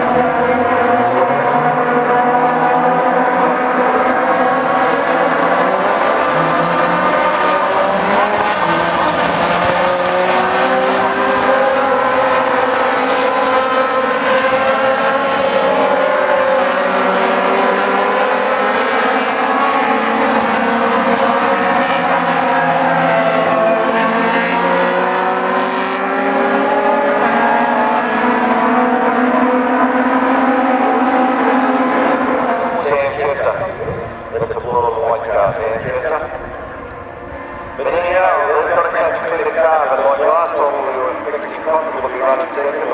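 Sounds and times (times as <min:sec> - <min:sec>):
racing car engines: 0:00.0 - 0:42.9.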